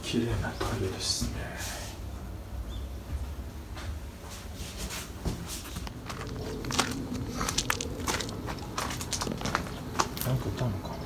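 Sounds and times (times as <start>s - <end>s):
footsteps clicking and scuffing: 3.1s - 10.7s.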